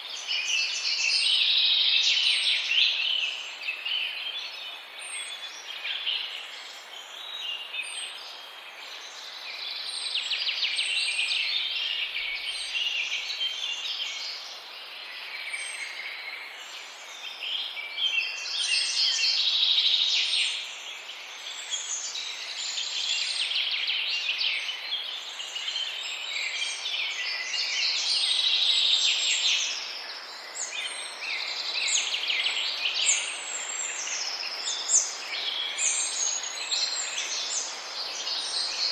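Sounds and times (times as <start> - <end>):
small birds chirping chorus: 0.0 - 38.9.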